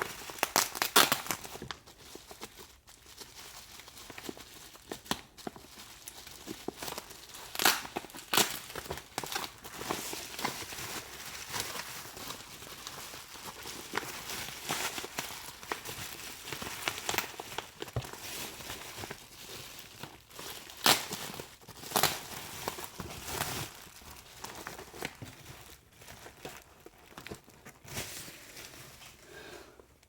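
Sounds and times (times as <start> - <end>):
bubble wrap crinkling: 0.0 - 29.4.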